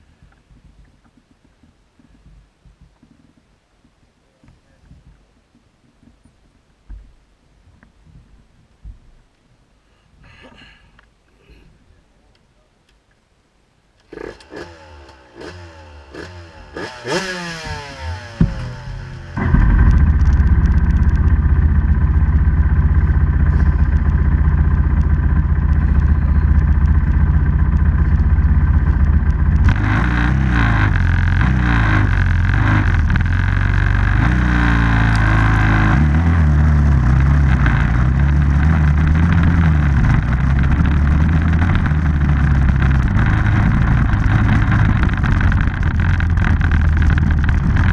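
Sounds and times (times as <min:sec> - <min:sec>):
off-road vehicle engine revving: 0:14.1 - 0:47.9.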